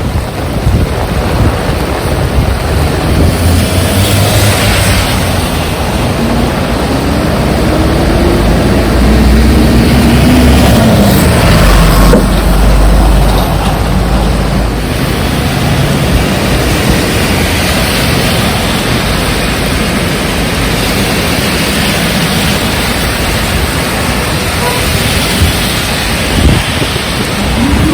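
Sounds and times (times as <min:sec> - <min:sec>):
heavy rain: 0:00.0 - 0:27.9
wind hissing: 0:00.0 - 0:27.9
motor vehicle passing: 0:02.5 - 0:22.2.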